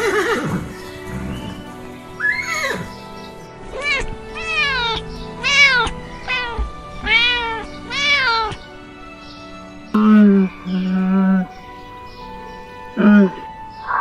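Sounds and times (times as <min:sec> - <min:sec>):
background music: 0:00.0 - 0:14.0
cat meowing: 0:03.7 - 0:08.7.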